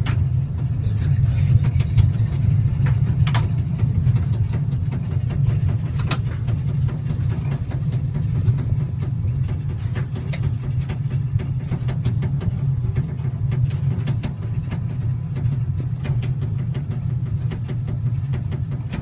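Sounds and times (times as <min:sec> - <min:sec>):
aircraft engine idling: 0:00.0 - 0:19.0
knocks and clicks: 0:01.6 - 0:19.0.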